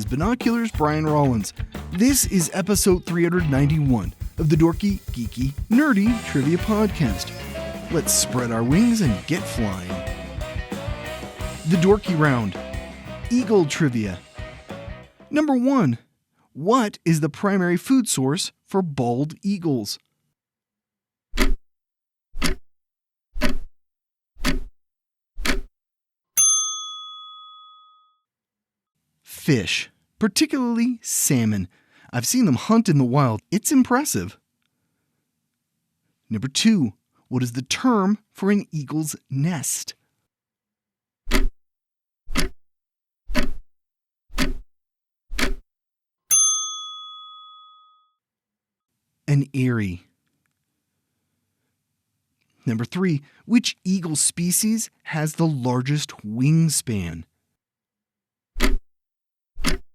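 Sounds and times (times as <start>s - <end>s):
clock ticking: 21.4s - 21.6s, 22.4s - 22.6s, 24.4s - 24.7s, 25.4s - 25.7s, 41.3s - 41.5s, 42.3s - 42.6s, 43.3s - 43.6s, 44.4s - 44.6s, 45.3s - 45.6s
bell ding: 26.4s - 28.1s, 46.3s - 48.1s.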